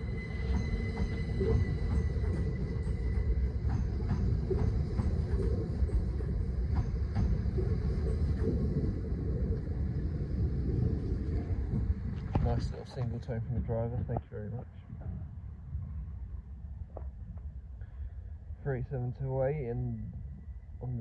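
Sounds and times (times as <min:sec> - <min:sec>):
thin electric whine: 0:00.0 - 0:14.3
train rumble: 0:00.0 - 0:21.0.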